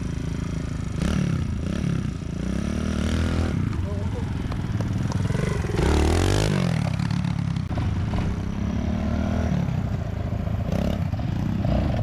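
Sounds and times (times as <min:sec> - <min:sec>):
small engine revving: 0:05.0 - 0:07.3.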